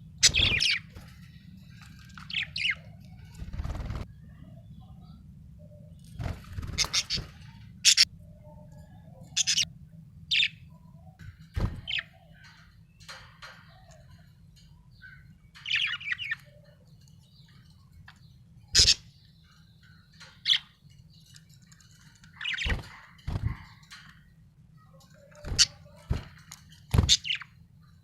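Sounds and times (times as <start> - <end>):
budgerigar chirping: 18.8 - 19.2.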